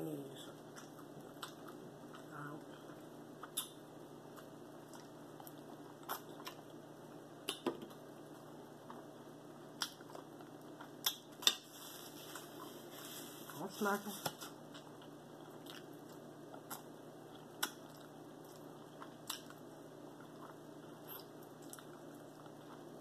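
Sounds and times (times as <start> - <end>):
person chewing: 0.6 - 6.8, 9.7 - 13.3, 14.7 - 23.0.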